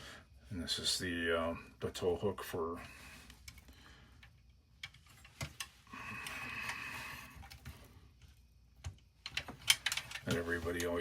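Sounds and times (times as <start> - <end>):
metal toy parts ticking and rattling: 9.2 - 10.9.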